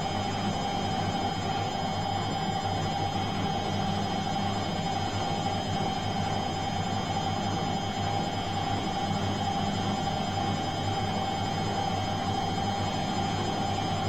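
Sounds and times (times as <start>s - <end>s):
washing machine humming: 12.0s - 14.0s.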